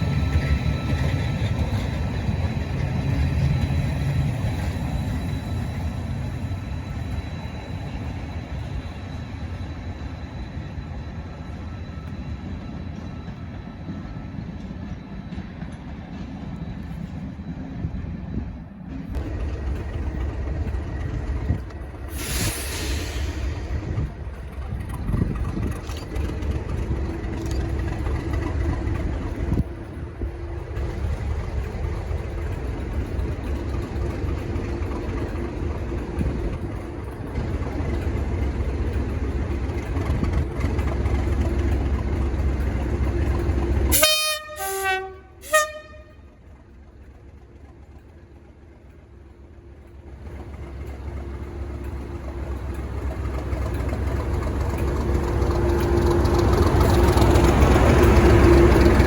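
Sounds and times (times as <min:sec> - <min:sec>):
train rumbling: 0:00.0 - 0:59.0
brief hiss: 0:22.1 - 0:23.7
two-tone train horn: 0:43.9 - 0:46.4.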